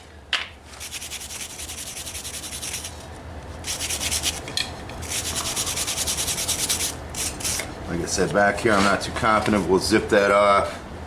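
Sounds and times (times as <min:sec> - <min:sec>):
wire brush scrubbing steel: 0:00.8 - 0:03.0, 0:03.6 - 0:04.4, 0:05.0 - 0:07.6.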